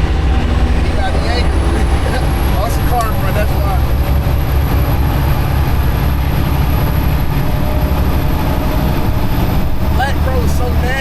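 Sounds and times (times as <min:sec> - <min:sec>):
diesel truck engine droning: 0:00.0 - 0:11.0.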